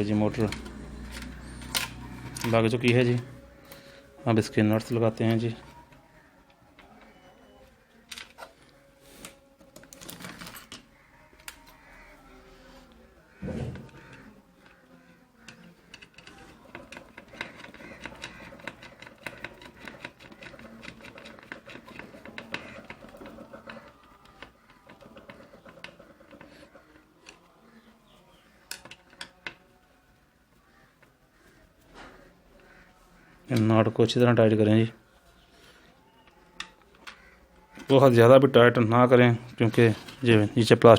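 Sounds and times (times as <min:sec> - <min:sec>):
nuts clicking and rattling: 0:15.4 - 0:27.4.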